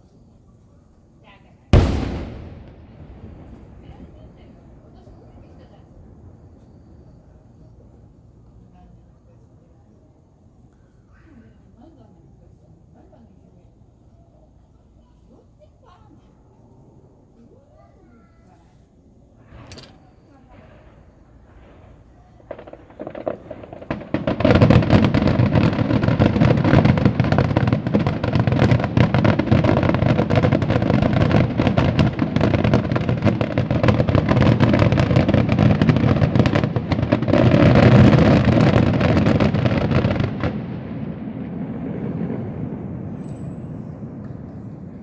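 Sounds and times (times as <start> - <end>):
fireworks bangs and crackle: 1.7 - 9.1, 19.4 - 45.0
echoing rumble: 1.8 - 8.2, 38.8 - 45.0.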